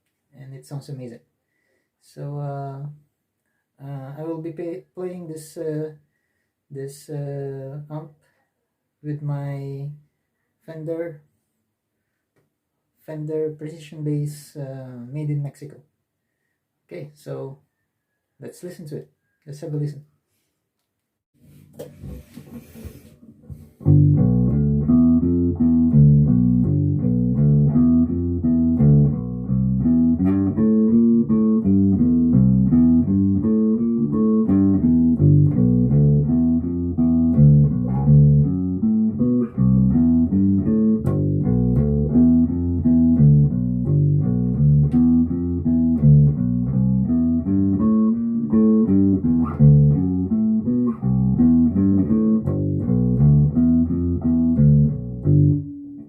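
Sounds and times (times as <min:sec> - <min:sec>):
plucked electric bass notes: 0:23.5 - 0:56.0.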